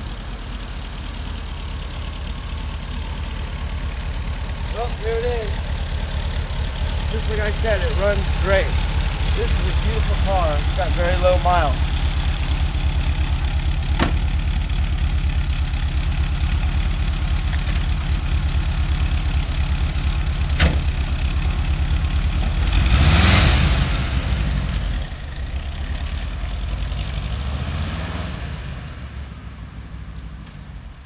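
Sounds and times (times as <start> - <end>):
car engine idling and revving: 0.0 - 31.0
engine lid shutting: 13.9 - 14.5, 20.5 - 21.0.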